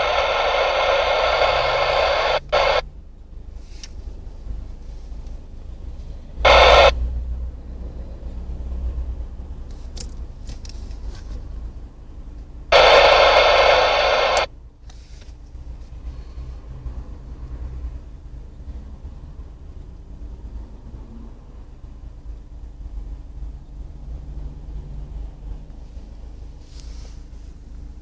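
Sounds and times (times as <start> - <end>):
radio static hiss bursts: 0.0 - 2.8, 6.4 - 7.0, 12.7 - 14.5.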